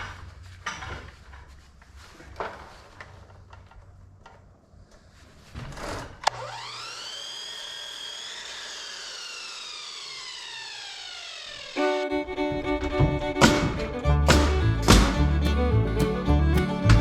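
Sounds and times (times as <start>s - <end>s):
power saw motor whining: 6.2s - 17.0s.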